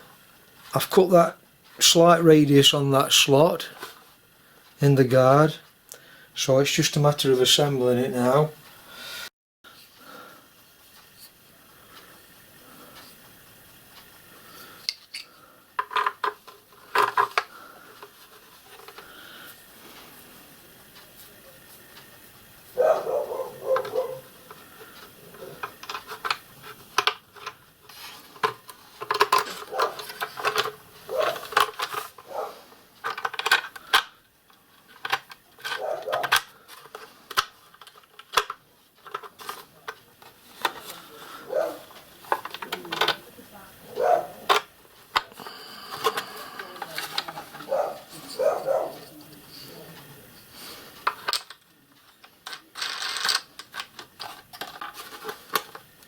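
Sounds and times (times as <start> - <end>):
metal parts clinking on plastic: 14.9 - 17.5, 23.7 - 32.3, 33.0 - 34.1, 34.8 - 40.0, 44.5 - 49.1, 51.0 - 56.0.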